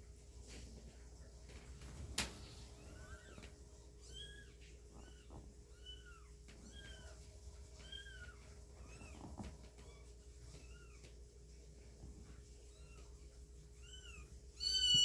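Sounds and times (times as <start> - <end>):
kittens mewing: 13.8 - 15.0.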